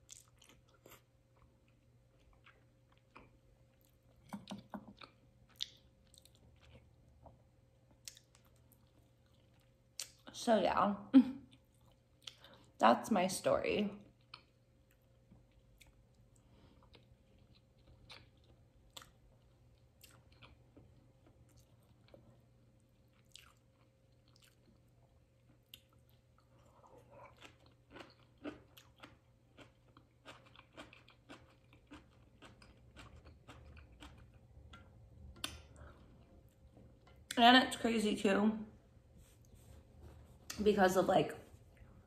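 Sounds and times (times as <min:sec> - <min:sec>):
chewing mouth clicks: 0:00.0 - 0:06.9, 0:16.8 - 0:19.2, 0:23.1 - 0:24.8
low steady hum: 0:00.0 - 0:42.0.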